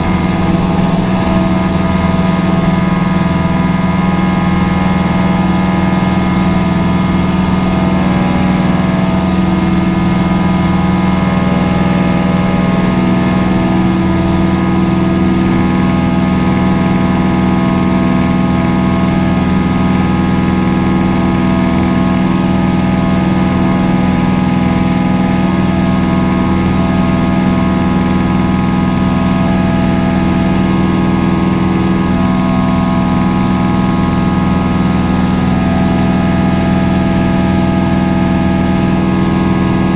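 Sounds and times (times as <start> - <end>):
propeller airplane engine drone: 0.0 - 39.9.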